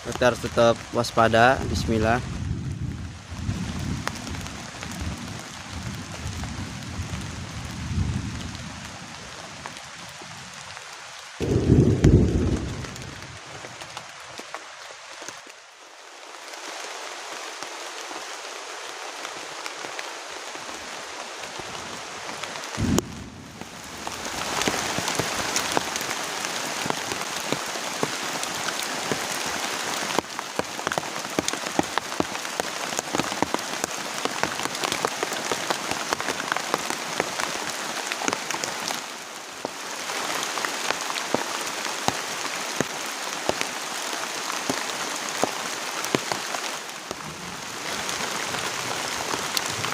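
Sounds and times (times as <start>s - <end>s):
heavy rain: 0.0s - 49.9s
raindrops hitting a surface: 0.0s - 49.9s
low thump: 11.4s - 13.3s, 22.8s - 23.6s.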